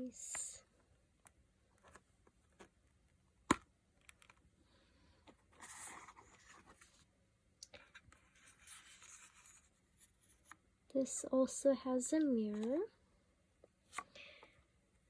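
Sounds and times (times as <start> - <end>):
soft scraping: 7.8 - 10.6.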